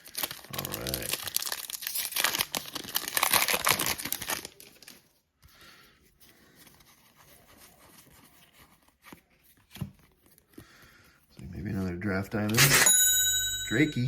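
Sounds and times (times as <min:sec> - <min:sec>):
foil wrapper crinkling and tearing: 0:00.0 - 0:05.2
faint rustling of cards: 0:00.0 - 0:12.6.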